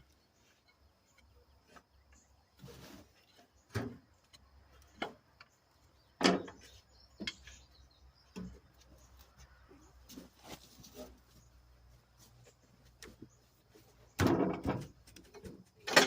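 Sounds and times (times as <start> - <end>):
tools clanking on metal: 6.2 - 7.7, 14.2 - 16.0.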